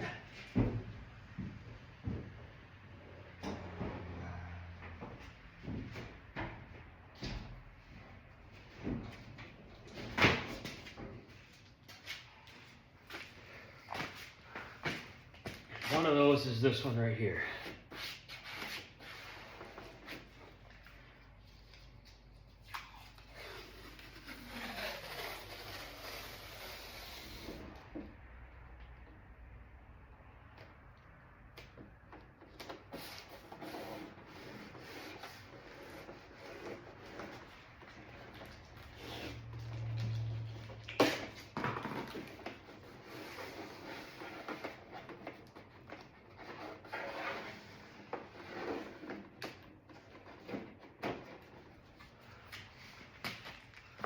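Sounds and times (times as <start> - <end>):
hands rubbing tape: 17.9 - 27.8
tape pulled off roll: 21.6 - 28.1, 31.5 - 54.0.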